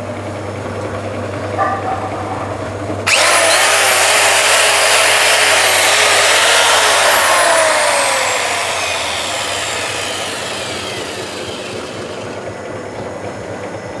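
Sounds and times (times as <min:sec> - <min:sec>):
power tool motor whining: 0:03.1 - 0:12.5
motor spinning down: 0:03.1 - 0:12.6.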